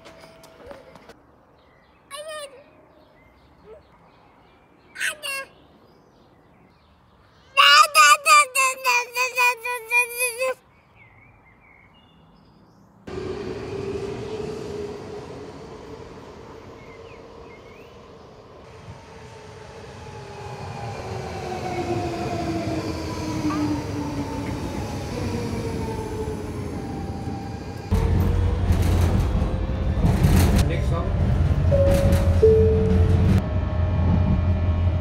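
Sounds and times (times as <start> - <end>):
electric train rumble: 13.1 - 35.0.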